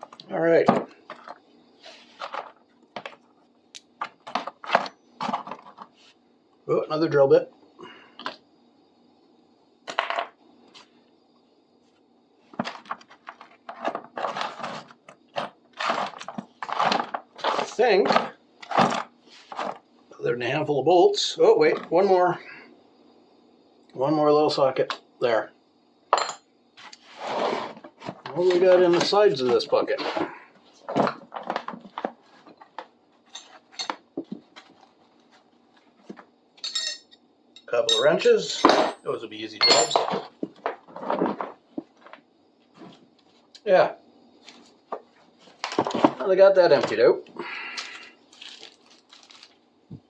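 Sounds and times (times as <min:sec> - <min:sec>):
tools clattering: 0:26.1 - 0:26.5, 0:30.9 - 0:34.8, 0:36.1 - 0:42.2
metal tools clinking and rattling: 0:26.2 - 0:26.4, 0:33.2 - 0:34.0, 0:36.6 - 0:40.4.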